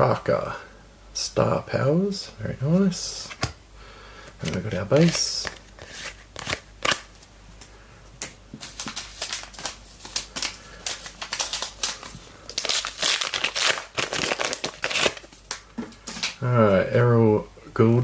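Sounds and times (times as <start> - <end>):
wrapper crinkling: 8.6 - 16.4.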